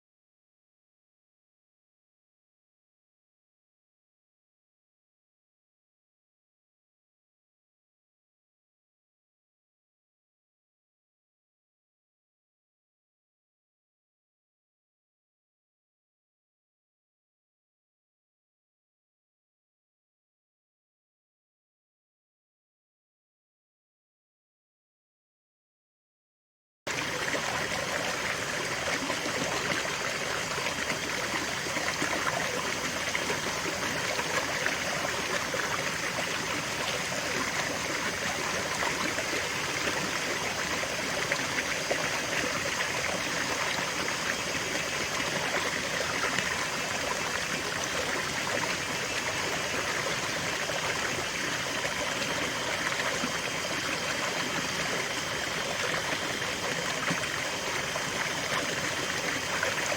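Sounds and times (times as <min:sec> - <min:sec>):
river water flowing: 0:26.9 - 0:59.9.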